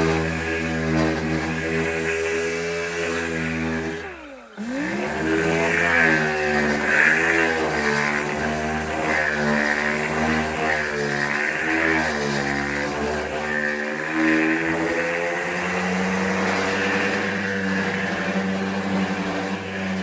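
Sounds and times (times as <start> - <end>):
power tool whining: 0.0 - 20.0.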